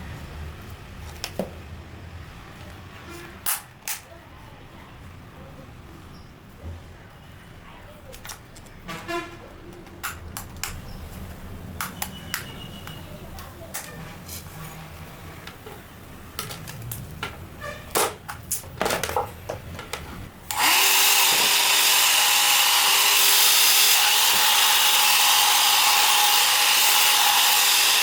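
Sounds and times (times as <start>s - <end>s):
hair dryer blowing air: 20.5s - 28.0s.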